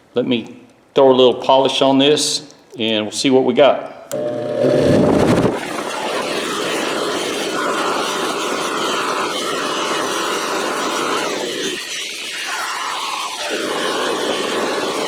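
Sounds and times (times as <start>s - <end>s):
bench buffer motor whirring: 4.1s - 10.4s
wrench hissing on buffing wheel: 5.6s - 15.0s.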